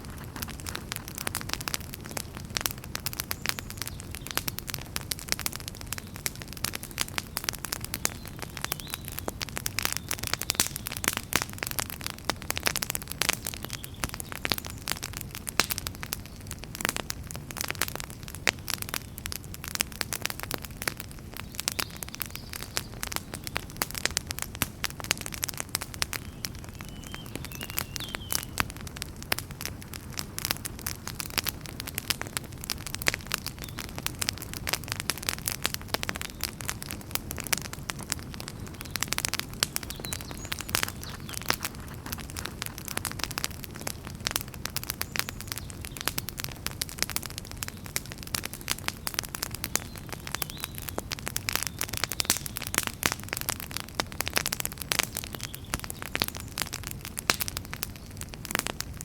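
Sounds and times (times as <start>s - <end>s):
low rumble of flames: 0.0s - 59.0s
wood fire crackling: 0.0s - 59.0s.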